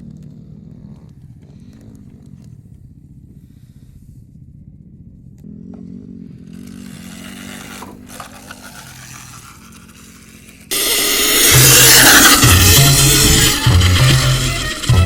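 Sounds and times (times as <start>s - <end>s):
dirt bike engine revving: 5.4s - 15.0s.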